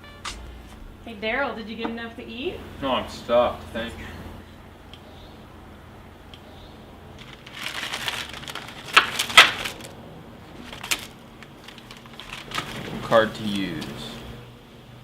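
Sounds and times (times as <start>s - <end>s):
paper crinkling and rustling: 7.2s - 13.9s.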